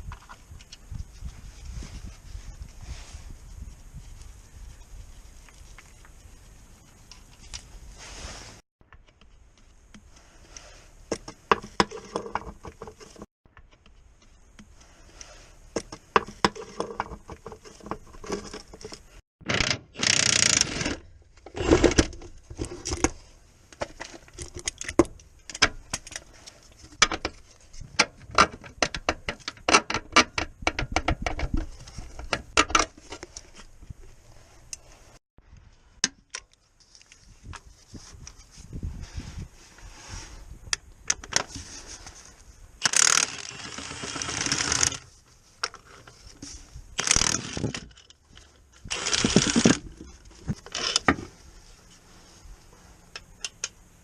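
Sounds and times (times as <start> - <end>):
ratchet clicking: 42.8 - 45.0, 47.0 - 47.7.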